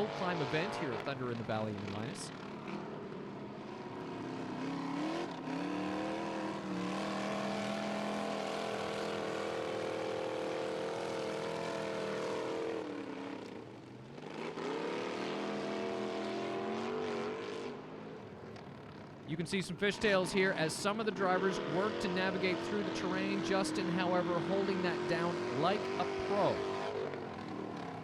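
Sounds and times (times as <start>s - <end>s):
truck engine revving hard: 4.4s - 12.8s, 20.9s - 27.1s.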